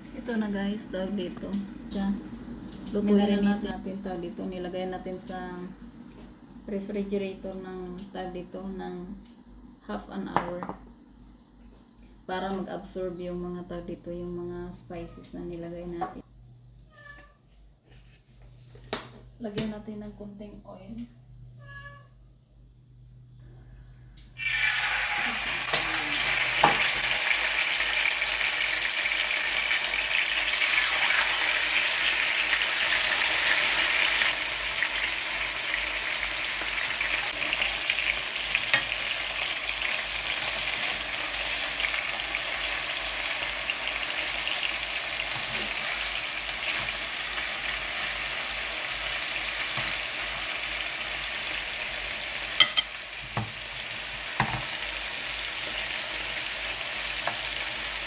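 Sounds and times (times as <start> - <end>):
chicken sizzling in frying pan: 24.4 - 58.0.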